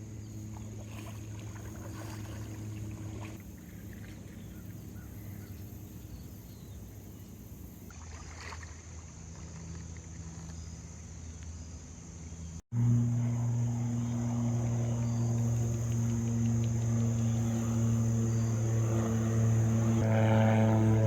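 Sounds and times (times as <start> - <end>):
water splashing against hull: 0.0 - 5.4, 7.8 - 10.5
paddle strokes: 0.0 - 6.1, 7.2 - 10.6
low droning hum: 0.0 - 21.0.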